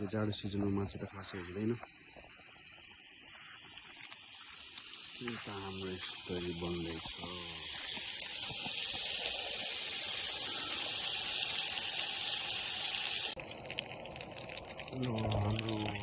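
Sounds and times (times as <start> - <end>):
pork sizzling in a pan: 2.0 - 14.1.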